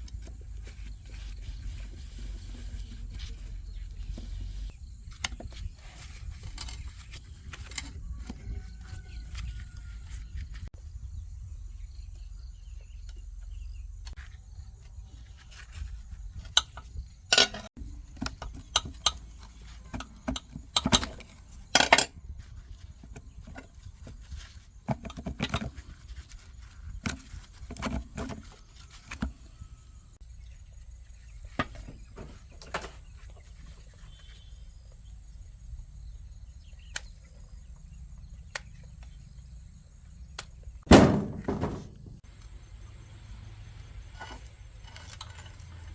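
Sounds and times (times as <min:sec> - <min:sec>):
tools clicking and knocking: 0:16.6 - 0:22.1.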